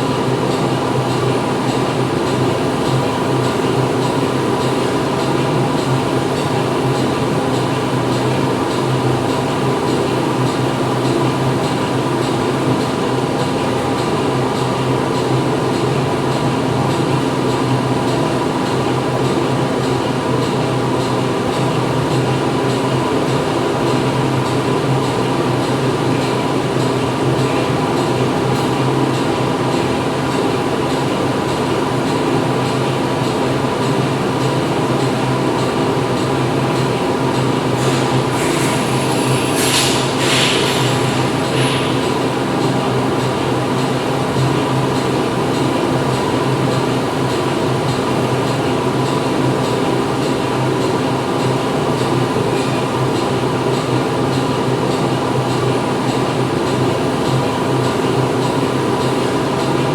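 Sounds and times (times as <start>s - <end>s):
factory machinery din: 36.8s - 47.4s.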